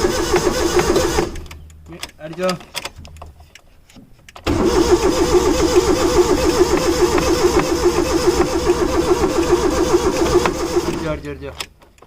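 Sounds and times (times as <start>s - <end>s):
starter motor cranking engine: 0.0s - 1.6s, 4.4s - 11.6s.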